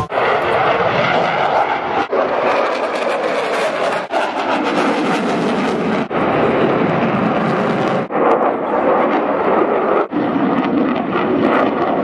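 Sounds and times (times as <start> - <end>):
aircraft engine noise: 0.0 - 12.0.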